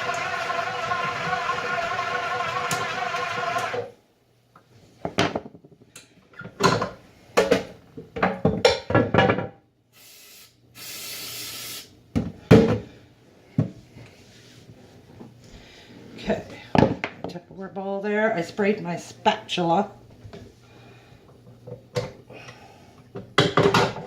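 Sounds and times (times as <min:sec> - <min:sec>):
electric mixer motor running: 0:00.0 - 0:03.9
cooking spray hissing: 0:10.0 - 0:12.0.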